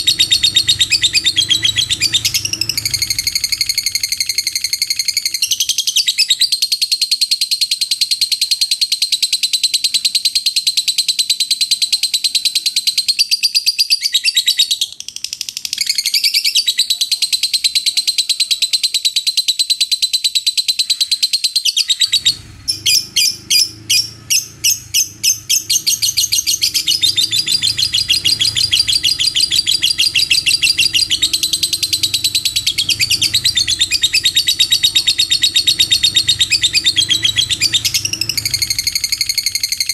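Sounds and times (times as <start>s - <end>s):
lovebird shrill chatter: 0.0s - 8.6s, 20.2s - 39.9s.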